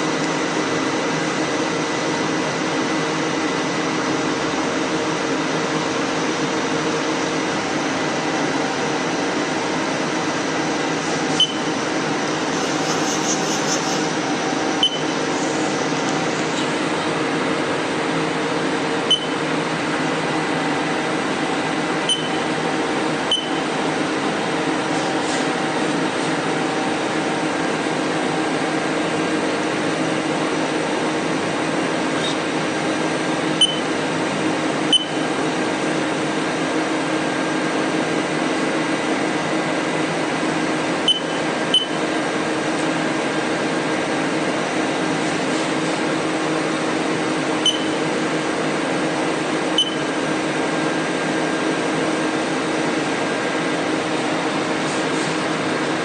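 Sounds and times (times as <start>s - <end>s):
machinery hum with fan noise: 0.0s - 56.0s.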